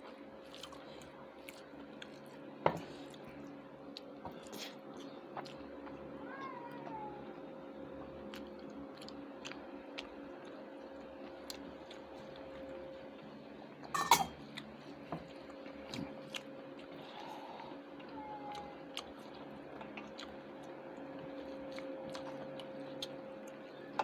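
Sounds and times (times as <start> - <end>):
person chewing food: 0.0 - 6.0, 8.3 - 12.6, 14.3 - 18.1, 18.9 - 23.7.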